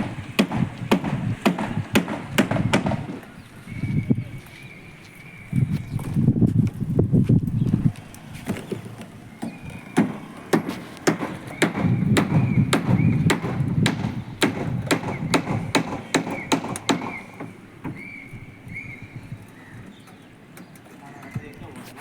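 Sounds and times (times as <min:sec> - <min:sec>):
hammer blows: 0:00.0 - 0:03.2, 0:09.4 - 0:18.1.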